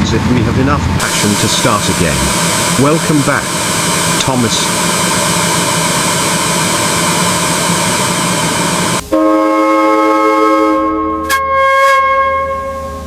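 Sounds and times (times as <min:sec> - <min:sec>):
train hissing: 0:00.9 - 0:11.3
train whistle chord: 0:01.0 - 0:13.0.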